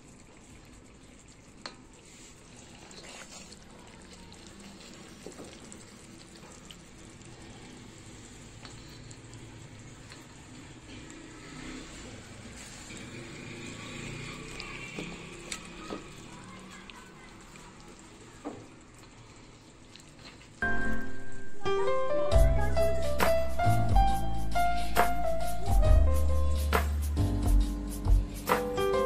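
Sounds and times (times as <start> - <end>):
chicken sizzling in gravy: 0.0 - 20.7.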